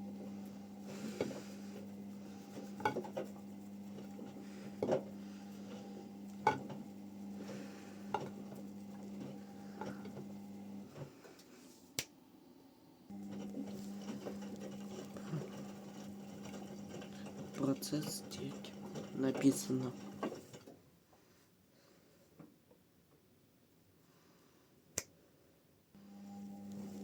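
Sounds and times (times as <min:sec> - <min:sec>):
washing machine motor hum: 0:00.0 - 0:11.4, 0:13.1 - 0:20.9, 0:26.0 - 0:27.0.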